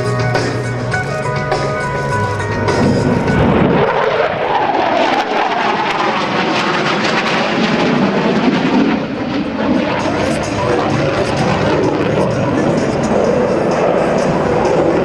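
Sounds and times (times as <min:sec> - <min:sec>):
loud jet noise: 0:00.0 - 0:15.0.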